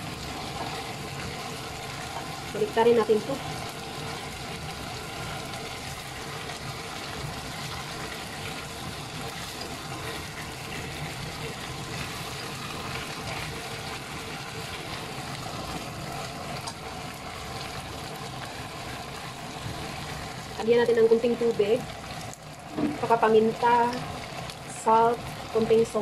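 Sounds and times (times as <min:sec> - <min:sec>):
chicken sizzling in a pot: 0:00.0 - 0:26.0
spatula turning food: 0:00.2 - 0:18.5.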